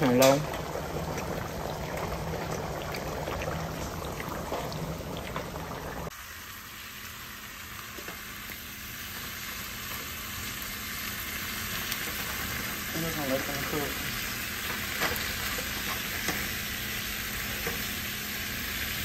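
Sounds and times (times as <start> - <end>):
food bubbling and sizzling: 0.0 - 19.0
quieter sizzle of vegetables: 0.0 - 19.0.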